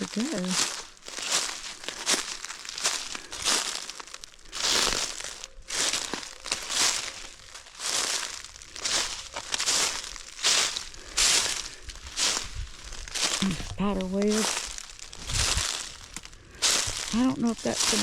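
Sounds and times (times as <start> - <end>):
footsteps crunching through dry leaves: 0.0 - 18.0.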